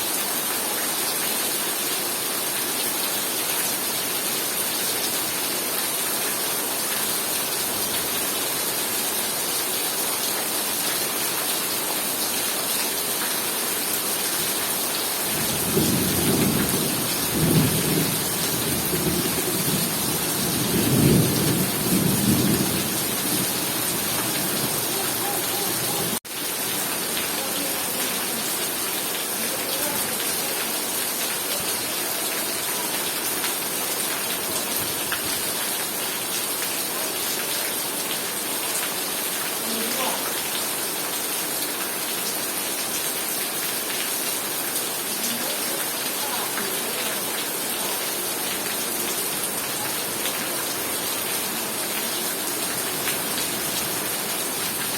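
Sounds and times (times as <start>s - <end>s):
heavy rain pouring: 0.0s - 54.9s
thunder rumbling: 15.4s - 24.9s.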